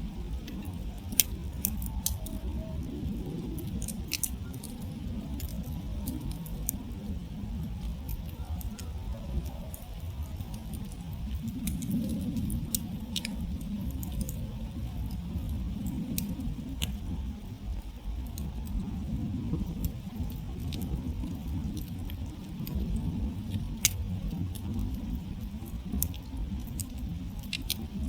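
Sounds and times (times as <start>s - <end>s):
campfire crackling and popping: 0.0s - 28.0s
low rumble: 0.0s - 28.0s.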